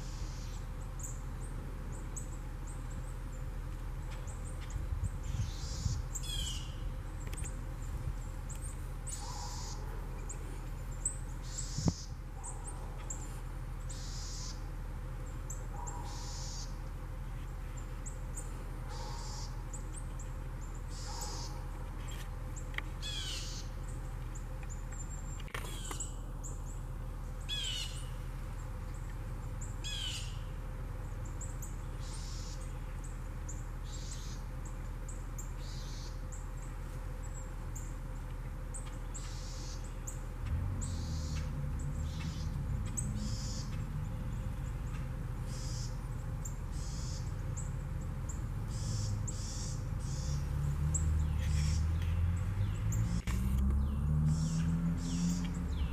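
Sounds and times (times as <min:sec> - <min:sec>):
birds calling: 0:00.0 - 0:55.9.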